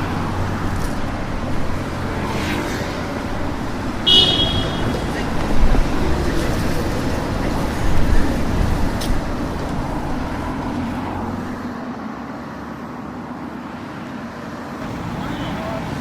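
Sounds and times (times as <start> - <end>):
vehicle engine rumbling: 0.0 - 11.7, 14.8 - 16.0
street traffic: 0.0 - 16.0.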